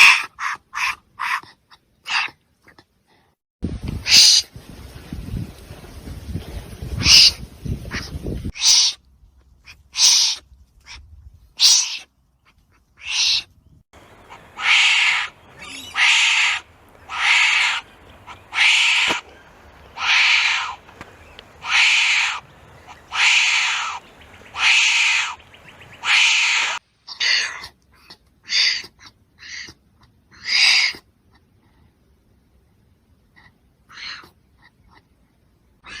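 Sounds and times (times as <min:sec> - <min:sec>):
wombat calling: 0:00.0 - 0:02.4, 0:07.0 - 0:09.0, 0:09.6 - 0:31.0.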